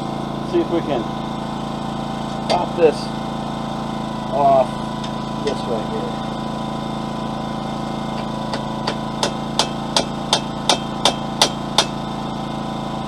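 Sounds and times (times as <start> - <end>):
generator engine running: 0.0 - 13.0
hammer striking hot steel: 8.1 - 12.0.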